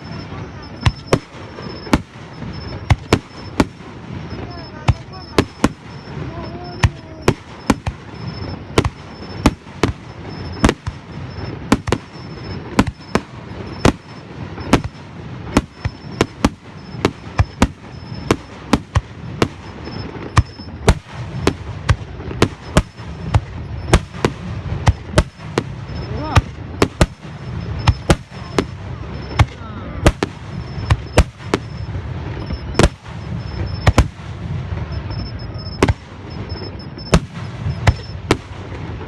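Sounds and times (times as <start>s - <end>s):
fireworks bangs: 0.0s - 39.0s.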